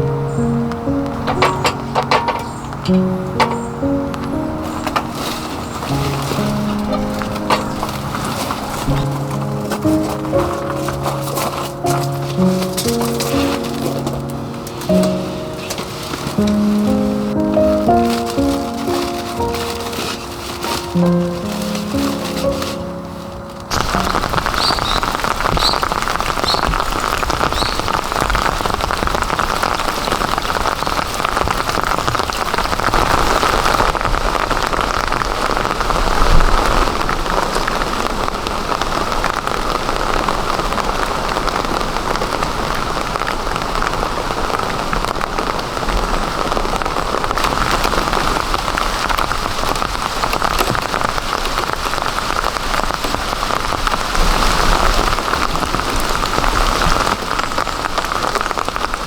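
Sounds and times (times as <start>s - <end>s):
heavy rain downpour: 0.0s - 59.0s.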